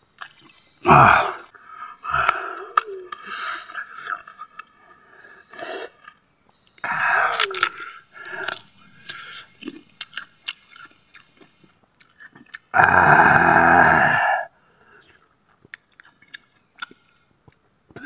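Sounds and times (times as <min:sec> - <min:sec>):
loud breathy vocal sound: 0:00.8 - 0:04.0, 0:06.8 - 0:09.5, 0:12.8 - 0:15.2
wet mouth clicks: 0:02.2 - 0:04.7, 0:07.3 - 0:12.8, 0:15.0 - 0:17.6
crunchy chewing of raw mango: 0:02.2 - 0:13.8, 0:14.8 - 0:17.7.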